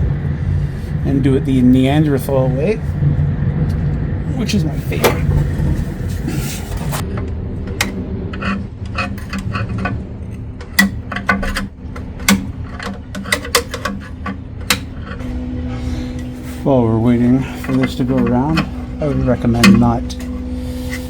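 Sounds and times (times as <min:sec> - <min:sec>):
steady low hum: 0:00.0 - 0:21.0
pry bar clanking on metal: 0:07.0 - 0:15.2, 0:17.2 - 0:21.0.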